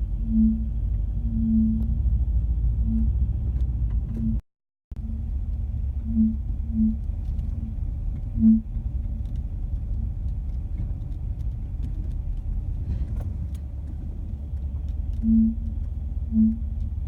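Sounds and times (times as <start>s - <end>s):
car engine idling: 5.0s - 17.0s
steering groan: 5.0s - 17.0s.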